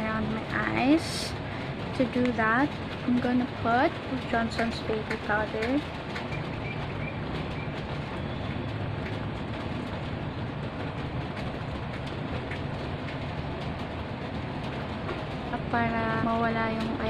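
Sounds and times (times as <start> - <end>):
heavy rain: 0.0 - 17.0
faint scattered taps: 3.9 - 8.2.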